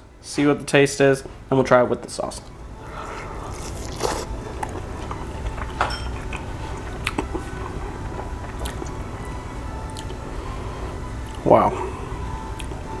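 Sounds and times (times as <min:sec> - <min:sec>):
steady low hum: 0:00.0 - 0:13.0
man chewing: 0:02.8 - 0:10.2, 0:12.4 - 0:12.8
wet mouth clicks and smacks: 0:07.0 - 0:07.4.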